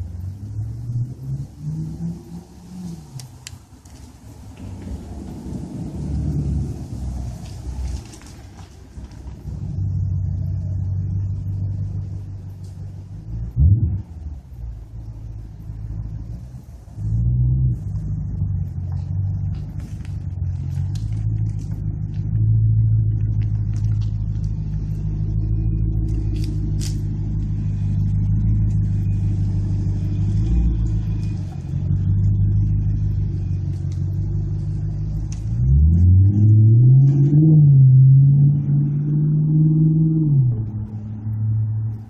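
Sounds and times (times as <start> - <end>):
car engine rumbling and revving: 0.0 - 42.0.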